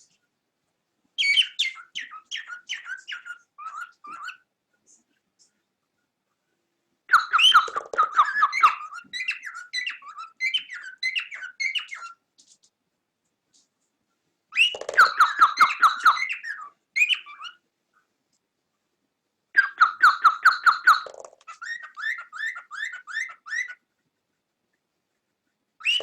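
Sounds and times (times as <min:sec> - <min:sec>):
cockatiel chirping: 0:01.2 - 0:04.5, 0:07.1 - 0:12.2, 0:14.5 - 0:17.6, 0:19.5 - 0:23.8, 0:25.8 - 0:26.0.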